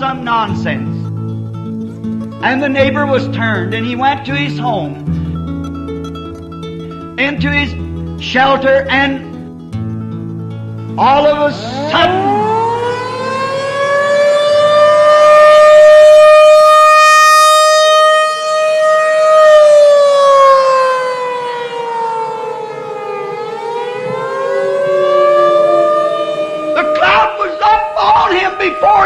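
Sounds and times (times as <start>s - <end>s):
siren wailing: 11.0s - 29.0s.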